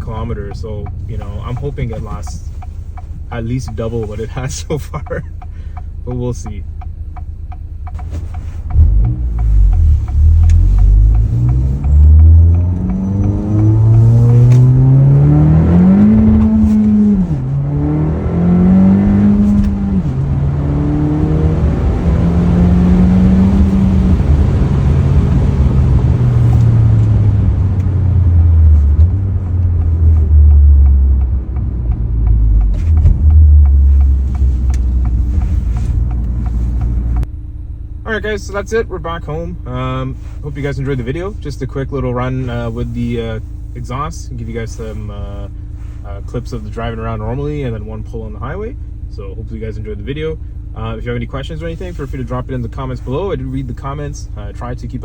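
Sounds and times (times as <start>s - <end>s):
car engine revving through gears: 7.5s - 37.3s.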